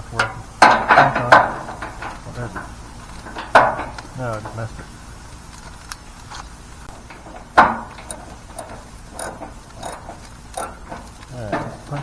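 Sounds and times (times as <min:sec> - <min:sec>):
socket ratchet clicking: 0:08.0 - 0:10.8.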